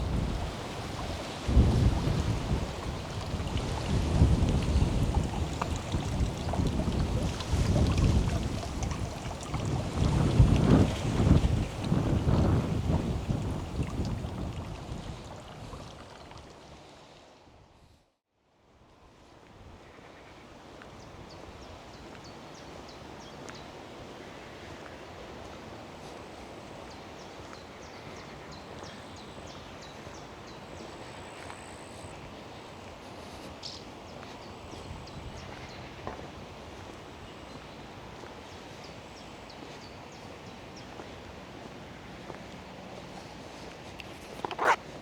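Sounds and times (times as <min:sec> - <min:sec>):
rustling: 0:43.2 - 0:45.0.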